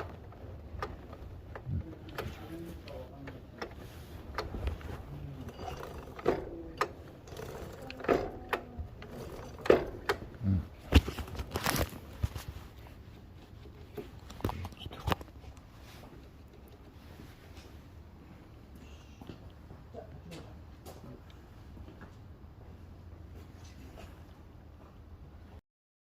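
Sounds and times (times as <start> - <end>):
hand tools and metal parts clinking: 3.6 - 12.5.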